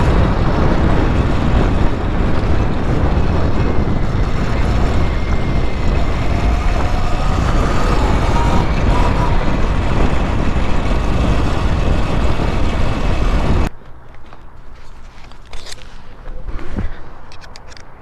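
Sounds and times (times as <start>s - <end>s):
wind rush on microphone: 0.0s - 13.7s
electric bike riding noise: 0.0s - 18.0s.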